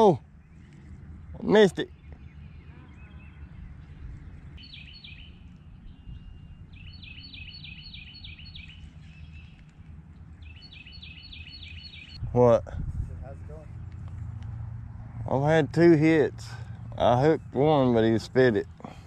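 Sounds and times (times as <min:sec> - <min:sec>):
songbird singing: 0:00.0 - 0:19.0
steady low rumble: 0:02.0 - 0:19.0.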